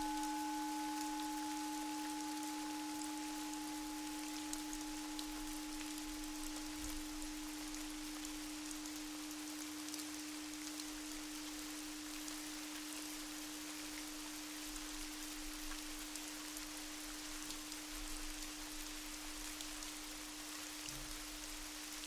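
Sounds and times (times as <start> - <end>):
low drone tone: 0.0 - 9.6
rain pattering: 0.0 - 22.0.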